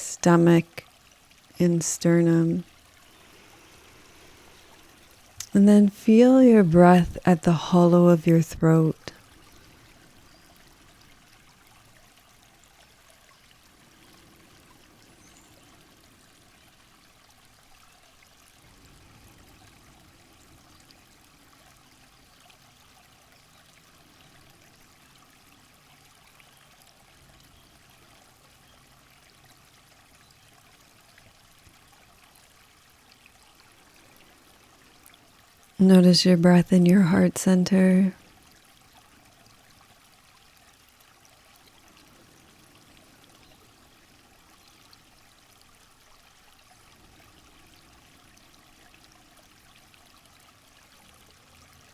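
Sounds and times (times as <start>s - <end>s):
running water: 0.0s - 51.9s.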